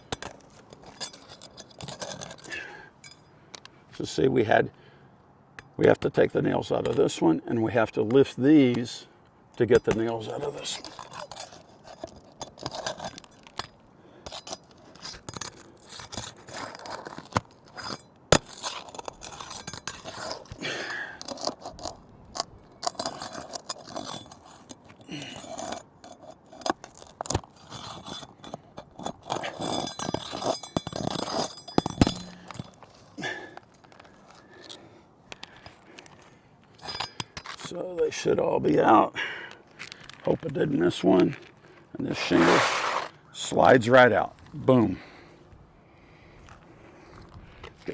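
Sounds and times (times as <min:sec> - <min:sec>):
metal tool clinks and knocks: 0:00.0 - 0:03.3, 0:28.0 - 0:32.9, 0:36.8 - 0:37.7
scraping and crunching of shingles: 0:10.0 - 0:34.6, 0:42.1 - 0:43.2.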